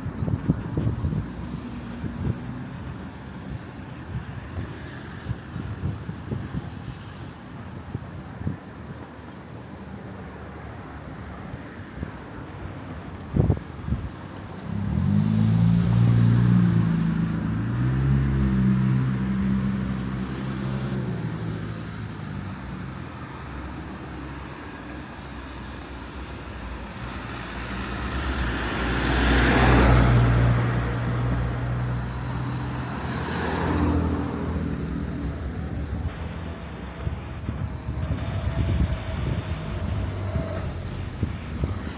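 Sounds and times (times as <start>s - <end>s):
cars driving past: 8.5s - 41.9s
vehicle engine running close: 13.3s - 41.9s.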